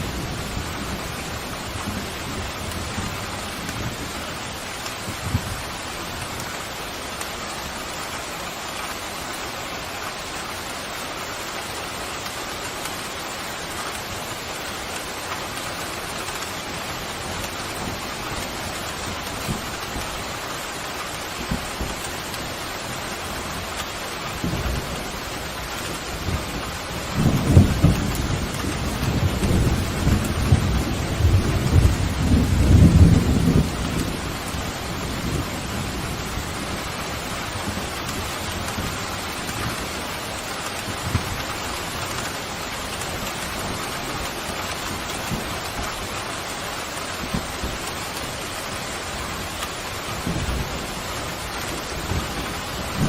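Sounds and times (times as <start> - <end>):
pouring rain: 0.0 - 53.0
low thunder rumble: 25.9 - 39.0.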